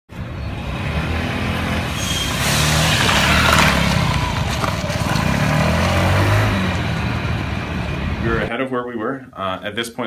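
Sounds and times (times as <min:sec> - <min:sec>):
vehicle engine running: 0:02.4 - 0:08.5.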